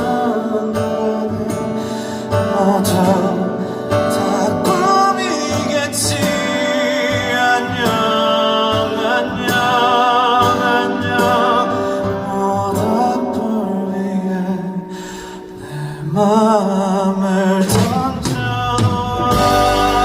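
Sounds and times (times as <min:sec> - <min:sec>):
band accompaniment with beat: 0:17.6 - 0:20.0.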